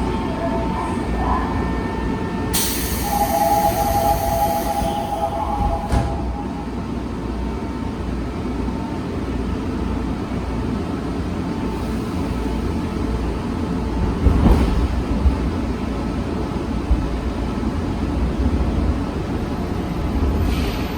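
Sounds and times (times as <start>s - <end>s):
subway train rumbling: 0.0s - 20.9s
train clatter: 2.5s - 6.7s, 13.7s - 19.2s.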